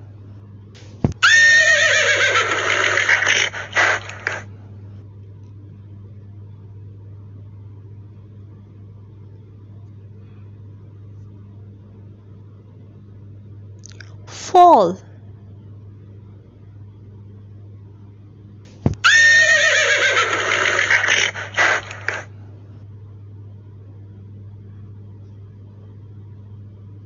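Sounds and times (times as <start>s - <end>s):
faint low hum: 0.0s - 27.0s
horse whinnying: 1.1s - 4.4s, 18.9s - 22.3s.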